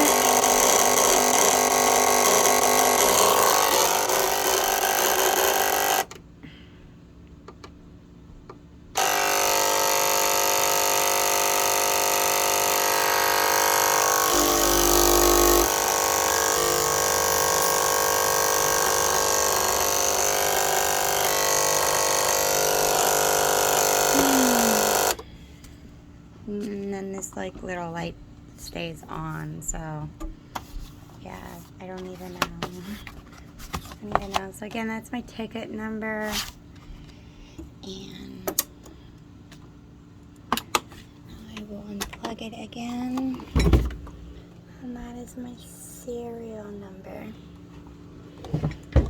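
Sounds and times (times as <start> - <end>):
cutting machine motors grinding: 0.0 - 6.1, 9.0 - 25.2
deeper hum: 13.2 - 21.4, 22.8 - 25.1.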